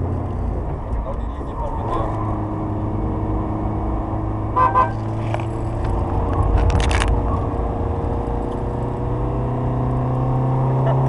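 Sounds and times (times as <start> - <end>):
clicks and rattles: 5.3 - 7.2.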